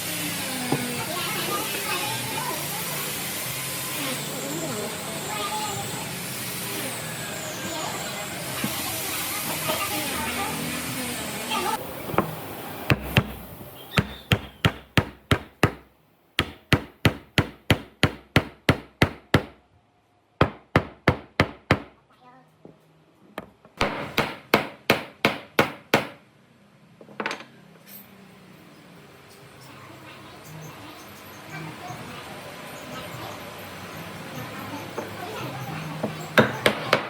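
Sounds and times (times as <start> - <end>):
hammer striking wood: 12.1 - 13.4, 14.0 - 19.6, 20.4 - 22.0, 23.8 - 26.2, 36.4 - 37.0.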